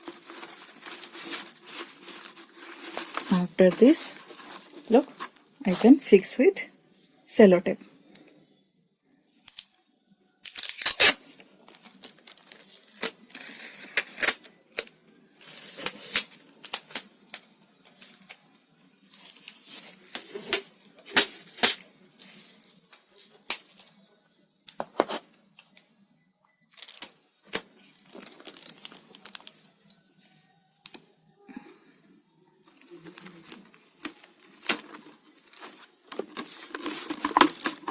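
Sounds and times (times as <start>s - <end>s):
tape tearing: 10.4s - 11.2s, 13.0s - 14.4s
clicks and crinkles of tape: 10.4s - 14.5s, 32.7s - 37.9s.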